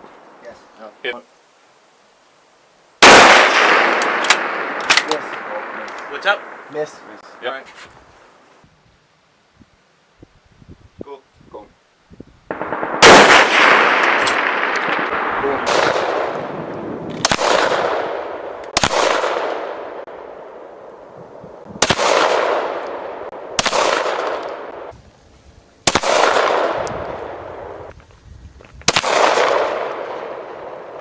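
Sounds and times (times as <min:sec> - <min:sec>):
rifle shots echoing: 0:03.0 - 0:07.1, 0:12.5 - 0:20.6, 0:21.8 - 0:24.9, 0:25.8 - 0:27.8, 0:28.9 - 0:31.0.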